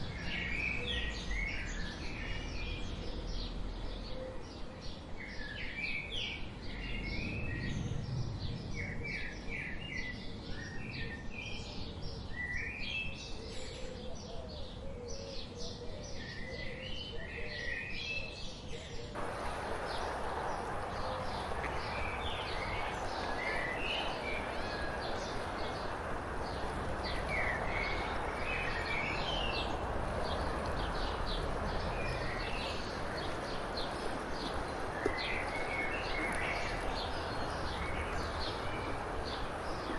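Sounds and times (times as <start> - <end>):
songbirds chirping: 0.0 - 39.9
steady hiss: 19.2 - 33.9.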